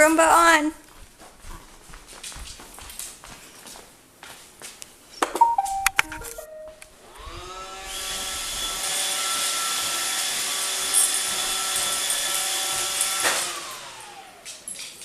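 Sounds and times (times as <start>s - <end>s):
robot vacuum motor whine: 7.0s - 14.4s.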